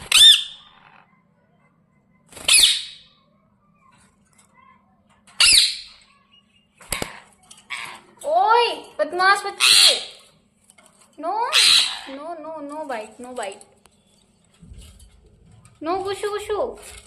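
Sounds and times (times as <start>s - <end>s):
parrot shrill calls: 0.0s - 1.0s, 2.4s - 3.1s, 5.4s - 6.0s, 9.6s - 10.2s, 11.5s - 12.2s.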